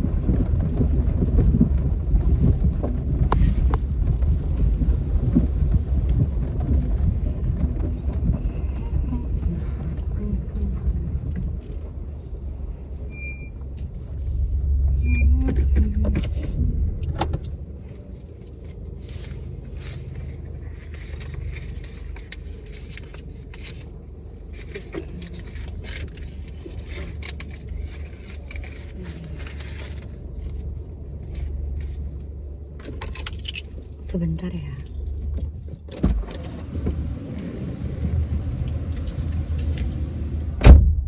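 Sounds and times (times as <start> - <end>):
low vehicle rumble: 0.0 - 41.0
handling clicks and rustles: 15.8 - 34.0.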